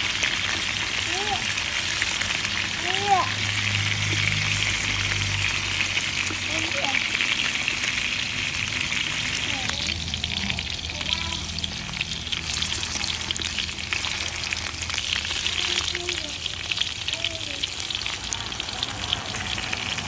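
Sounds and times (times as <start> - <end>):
meat sizzling in hot oil: 0.0 - 20.0.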